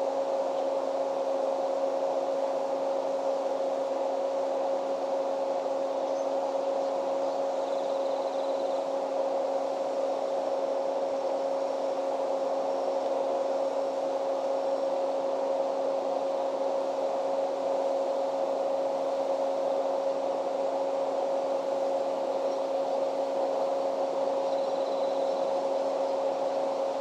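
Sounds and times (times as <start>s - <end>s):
even whirring noise: 0.0s - 27.0s
two-tone mechanical hum: 0.0s - 27.0s.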